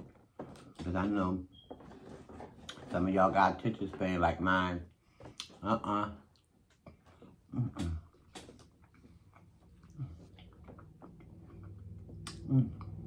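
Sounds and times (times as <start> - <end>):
chewing with wet clicks: 6.3 - 7.0, 8.3 - 13.0
person murmuring mm: 7.5 - 8.1, 12.3 - 13.0.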